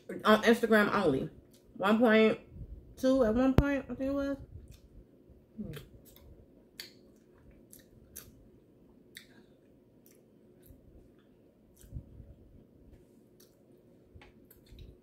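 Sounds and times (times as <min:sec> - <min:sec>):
chewing with wet mouth clicks: 0:04.6 - 0:04.9, 0:05.7 - 0:08.4, 0:09.1 - 0:09.4, 0:10.0 - 0:12.0, 0:13.3 - 0:13.6, 0:14.2 - 0:15.0.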